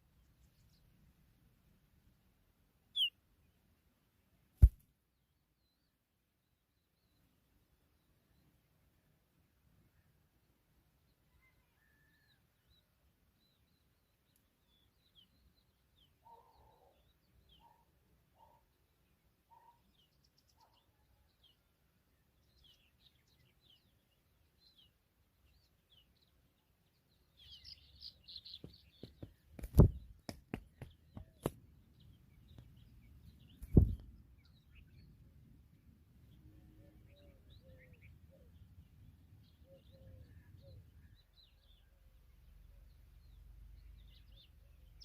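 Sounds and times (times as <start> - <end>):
birds chirping: 2.9 - 3.2, 22.4 - 45.0.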